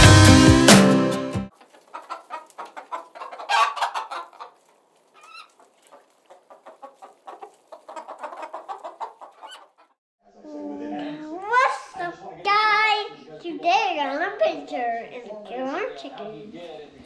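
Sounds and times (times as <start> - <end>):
chickens clucking: 1.5 - 10.0.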